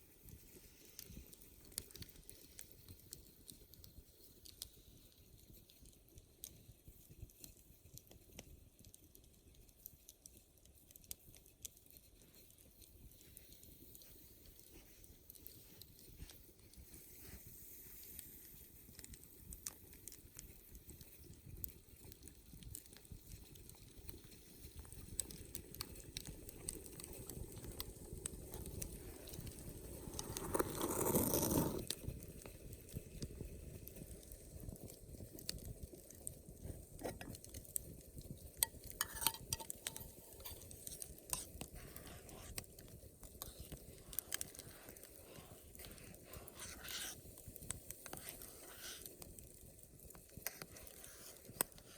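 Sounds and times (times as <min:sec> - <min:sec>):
campfire crackling: 0:00.0 - 0:51.9.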